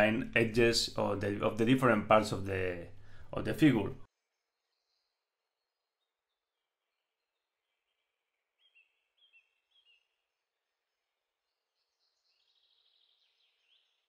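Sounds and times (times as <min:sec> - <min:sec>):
faint bird chirps: 0:04.1 - 0:14.0.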